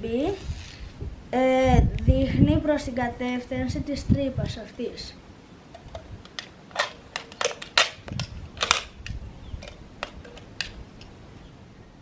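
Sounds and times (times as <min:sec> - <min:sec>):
hard plastic parts clicking: 0:05.7 - 0:11.2.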